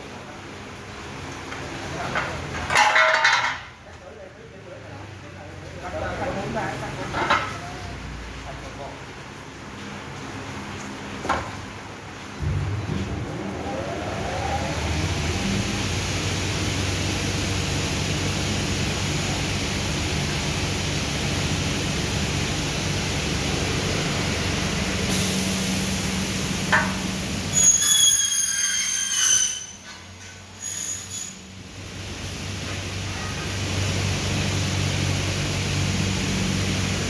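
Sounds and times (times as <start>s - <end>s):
saw blade squealing on metal: 27.5s - 31.5s.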